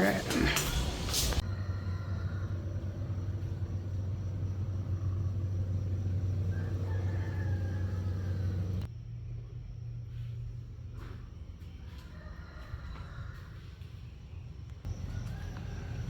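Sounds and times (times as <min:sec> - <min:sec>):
steady low rumble: 0:00.0 - 0:11.8
faint steady hum: 0:00.0 - 0:16.0.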